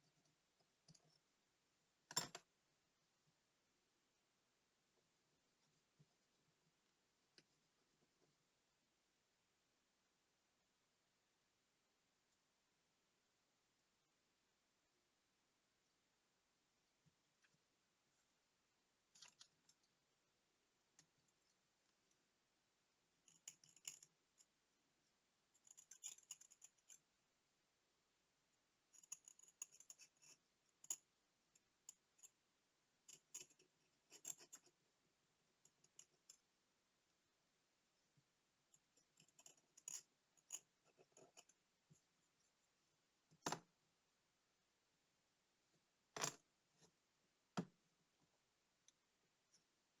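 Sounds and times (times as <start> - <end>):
small tool clicks and scrapes: 34.1 - 34.7, 39.2 - 41.5.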